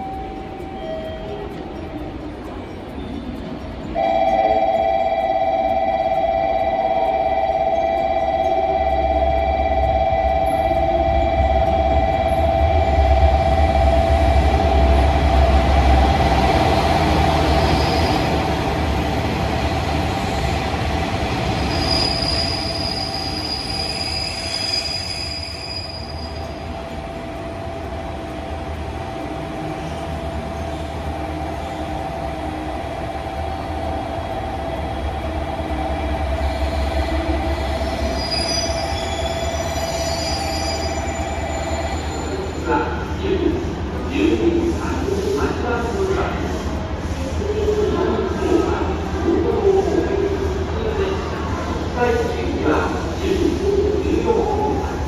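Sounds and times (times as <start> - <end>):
steady high-pitched tone: 0.0 - 55.0
train rumble: 0.0 - 55.0.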